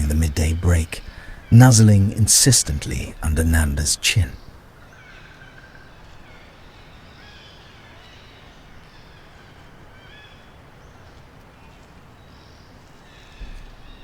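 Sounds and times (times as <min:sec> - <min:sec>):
high chirping animal calls: 0:00.0 - 0:04.6
steady background hiss: 0:00.0 - 0:14.0.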